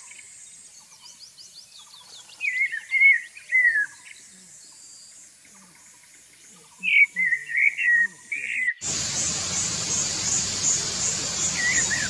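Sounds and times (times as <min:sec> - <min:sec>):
bird whistled calls: 0:06.8 - 0:12.0
faint high chirps: 0:08.8 - 0:12.0.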